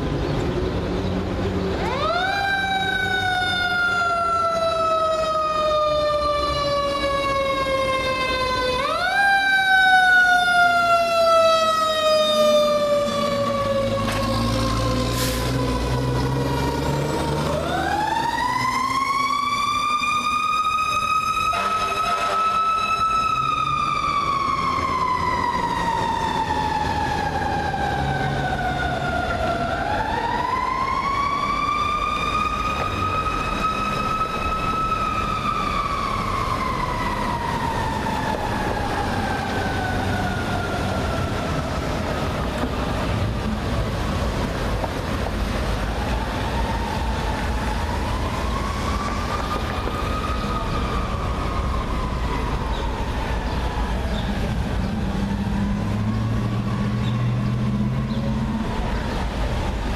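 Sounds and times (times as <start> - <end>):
truck engine rumble: 0.0 - 59.9
mechanical siren wailing: 1.8 - 43.5, 45.6 - 59.9
air horn blast: 21.5 - 23.0.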